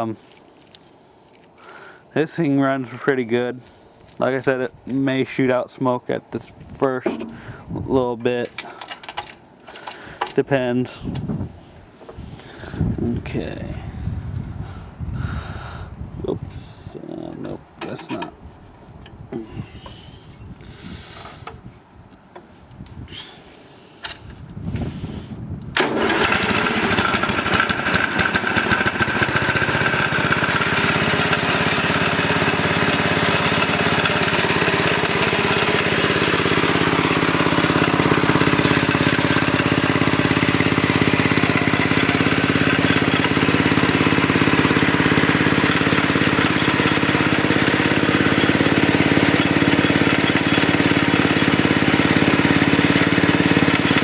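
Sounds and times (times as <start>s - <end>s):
single-cylinder engine running: 25.8s - 54.0s.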